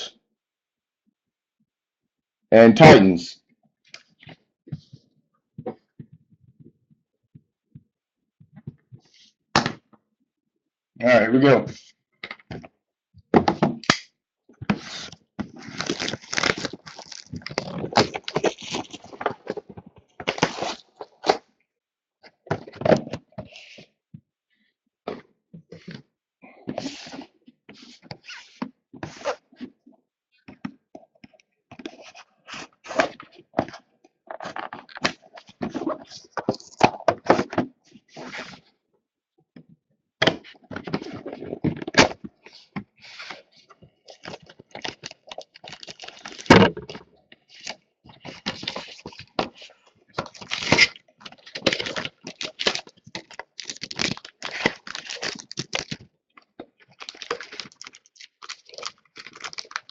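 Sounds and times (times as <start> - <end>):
cardboard box opened: 14.7 - 21.4, 50.2 - 56.0
plastic wrap tearing and crinkling: 14.9 - 19.5, 44.1 - 46.5, 47.6 - 56.0, 56.8 - 59.9.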